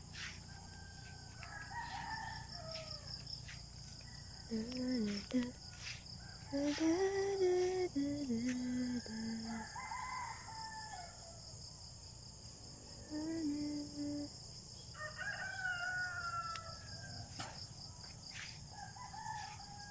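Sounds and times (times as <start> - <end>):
high insect buzz: 0.0 - 10.8, 12.0 - 19.7
rooster crowing: 0.1 - 7.7, 8.6 - 11.5, 14.9 - 17.6, 18.7 - 19.9
person humming: 4.5 - 5.6, 6.5 - 9.6, 13.1 - 14.3.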